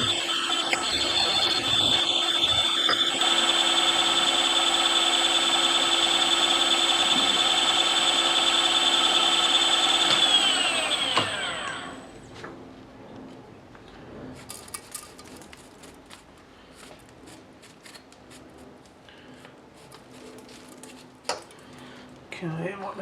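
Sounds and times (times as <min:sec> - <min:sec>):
milling machine motor whining: 0:00.0 - 0:12.2.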